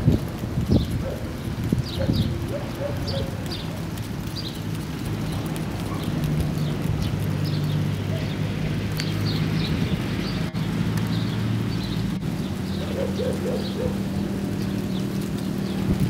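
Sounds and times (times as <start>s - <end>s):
outdoor noise: 0.0s - 16.0s
small birds chirping: 0.0s - 16.0s.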